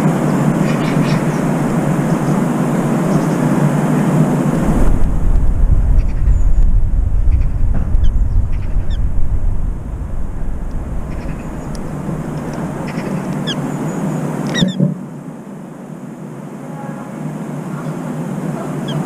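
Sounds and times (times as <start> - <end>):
birds chirping: 0.0 - 4.8, 5.9 - 9.2, 9.8 - 15.1, 17.7 - 19.0
low rumble: 0.0 - 14.8.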